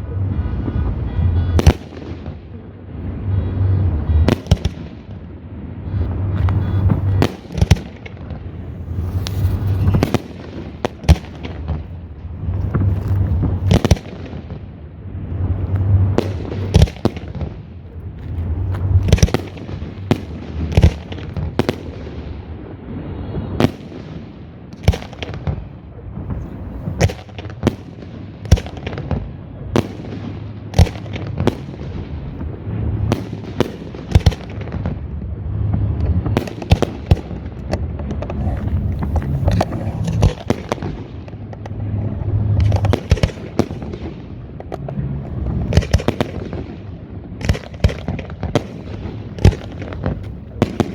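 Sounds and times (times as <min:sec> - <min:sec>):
firework shell bursts: 0:08.6 - 0:11.5.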